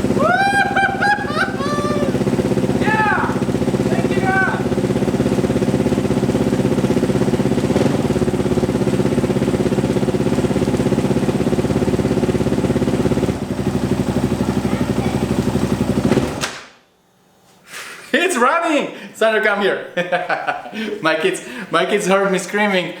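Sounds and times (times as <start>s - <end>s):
single-cylinder engine running: 0.0s - 16.6s.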